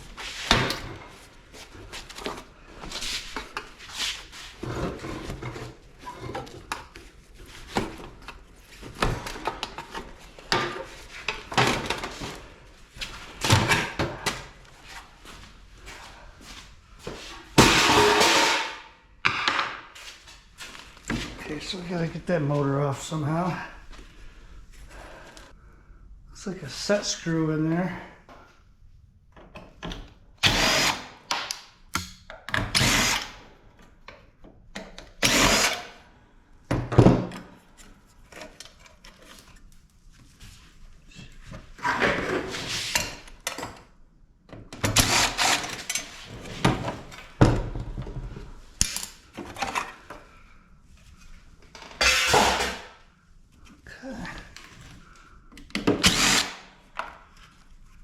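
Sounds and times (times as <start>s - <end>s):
power drill bursts: 30.4s - 31.1s, 32.7s - 33.4s, 56.0s - 56.7s.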